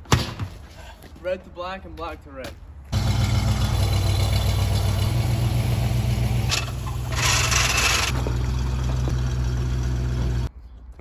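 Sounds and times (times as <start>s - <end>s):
car engine idling: 3.0s - 10.5s.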